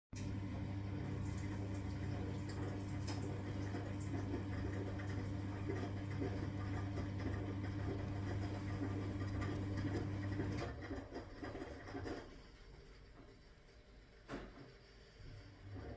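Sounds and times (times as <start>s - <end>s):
washing machine motor hum: 0.1s - 15.9s
washing machine clicks and rattles: 1.1s - 12.3s.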